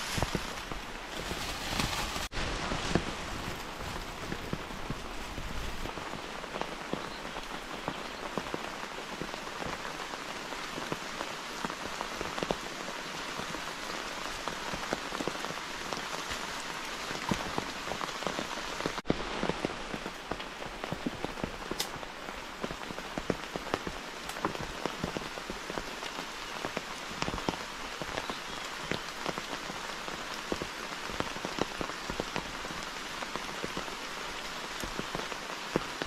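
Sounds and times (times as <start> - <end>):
rain falling: 0.0 - 36.0
raindrops tapping close by: 0.0 - 36.0.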